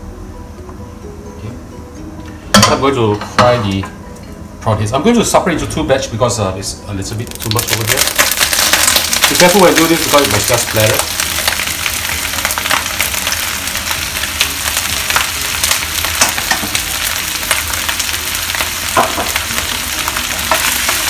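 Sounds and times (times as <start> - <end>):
frying sizzle with crackling pops: 7.1 - 21.0.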